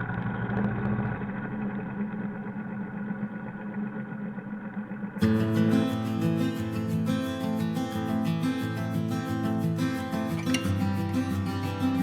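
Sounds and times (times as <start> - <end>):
guitar music: 5.2 - 12.0.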